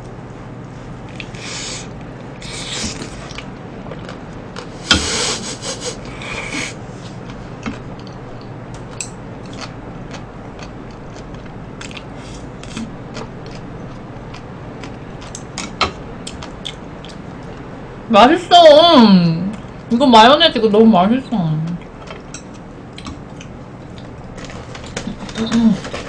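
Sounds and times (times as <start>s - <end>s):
soft chewing clicks: 3.0s - 4.7s, 7.0s - 17.7s, 21.6s - 25.4s.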